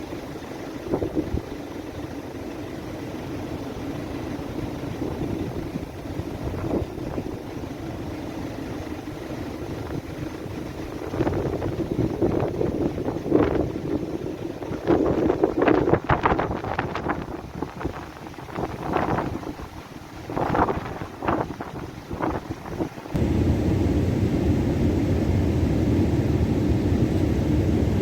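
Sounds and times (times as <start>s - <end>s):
gusty wind buffeting microphone: 9.6s - 28.0s.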